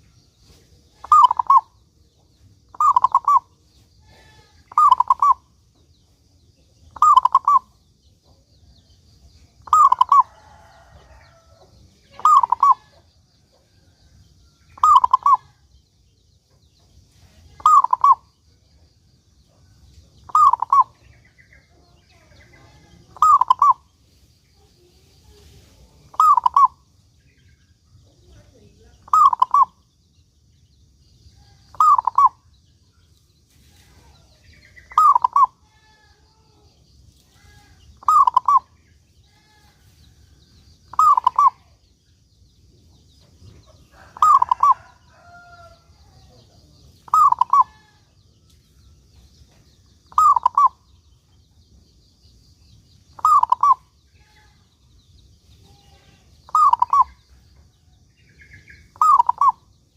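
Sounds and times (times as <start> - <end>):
faint high chirping: 0.0 - 59.9
dove cooing: 1.0 - 1.6, 2.7 - 3.5, 4.2 - 5.4, 7.0 - 7.7, 9.7 - 10.6, 12.1 - 12.9, 14.8 - 15.4, 17.6 - 18.2, 20.3 - 20.9, 23.2 - 23.8, 26.1 - 26.7, 29.1 - 29.7, 31.7 - 32.4, 35.0 - 35.5, 37.5 - 38.7, 40.9 - 41.7, 44.0 - 44.9, 47.0 - 47.9, 50.1 - 50.8, 53.2 - 53.8, 56.0 - 57.2, 59.0 - 59.6.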